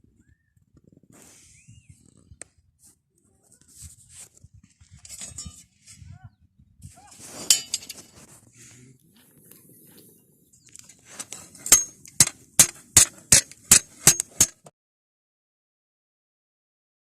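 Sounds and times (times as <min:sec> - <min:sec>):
light metallic clinks: 0:05.0 - 0:05.7
hammer striking steel: 0:11.6 - 0:14.7.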